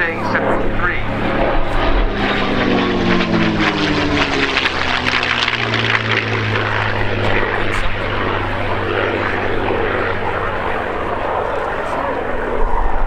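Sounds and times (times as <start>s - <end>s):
engine crackle: 0.0s - 12.9s
propeller plane engine droning: 0.0s - 13.0s.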